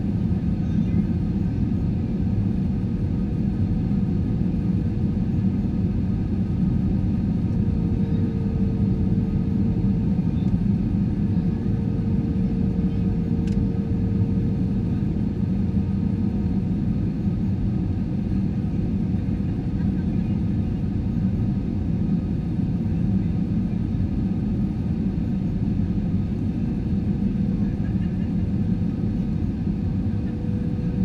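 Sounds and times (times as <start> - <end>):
faint steady hum: 0.0 - 18.8
airplane cabin roar: 0.0 - 31.0.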